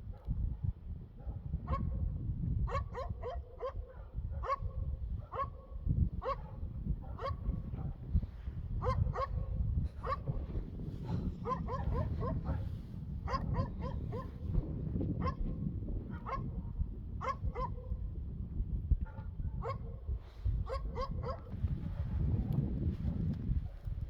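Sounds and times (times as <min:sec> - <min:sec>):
steady low rumble: 0:05.9 - 0:19.6.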